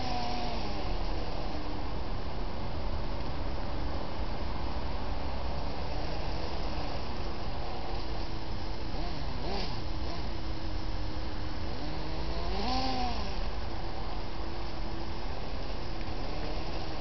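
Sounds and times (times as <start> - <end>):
electric motor whining: 0.0 - 1.6.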